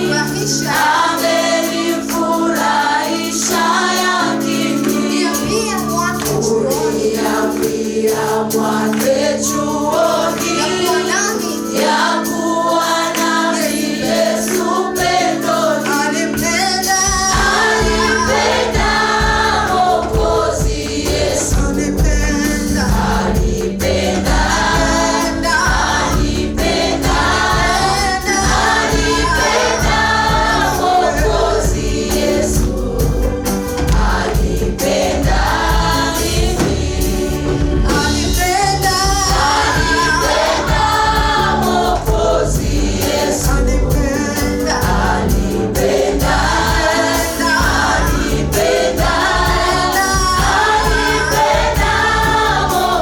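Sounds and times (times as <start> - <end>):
choir singing in harmony: 0.0 - 53.0
keyboard chords: 0.0 - 53.0
bass line: 16.4 - 53.0.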